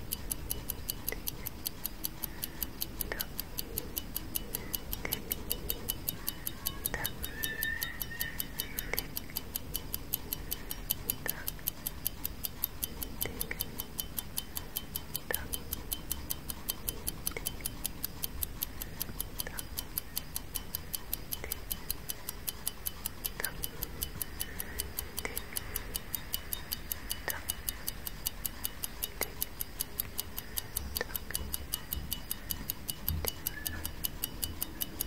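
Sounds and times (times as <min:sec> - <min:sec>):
clock ticking: 0:00.0 - 0:35.0.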